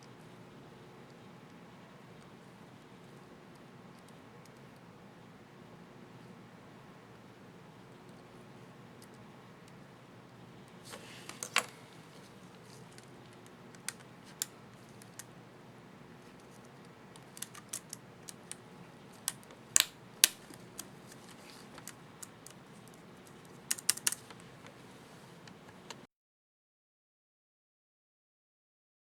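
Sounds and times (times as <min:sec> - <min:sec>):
plastic keycap clicks: 0:17.2 - 0:18.6, 0:23.7 - 0:24.3.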